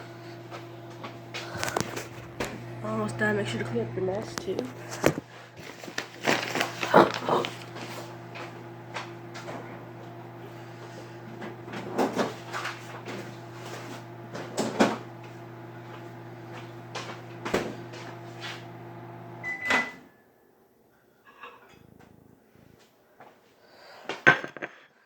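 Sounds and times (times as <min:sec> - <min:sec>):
microwave oven humming: 0:00.0 - 0:20.8
microwave beep: 0:19.4 - 0:20.3.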